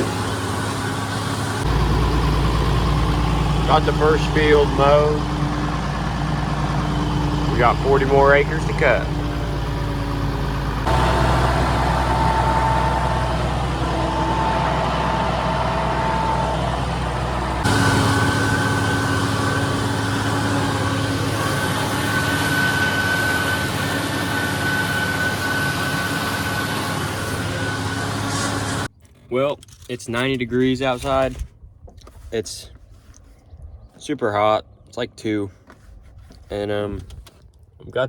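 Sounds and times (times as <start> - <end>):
steady whine: 0.0 - 28.9
tractor engine running: 0.0 - 28.9.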